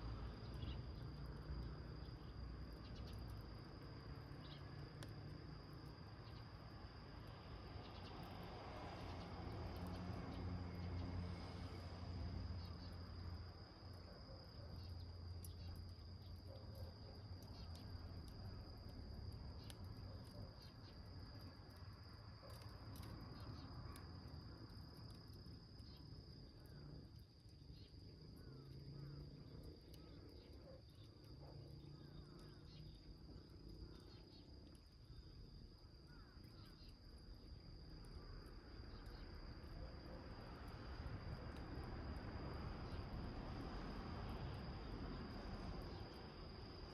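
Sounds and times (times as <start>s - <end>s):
small wood fire crackling: 0.4s - 46.9s
insect trilling: 36.1s - 37.5s.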